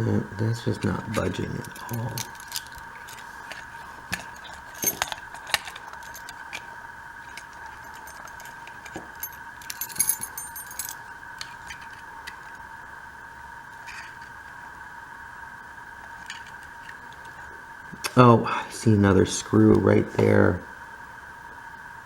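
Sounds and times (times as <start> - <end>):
high whine: 0.0 - 22.0.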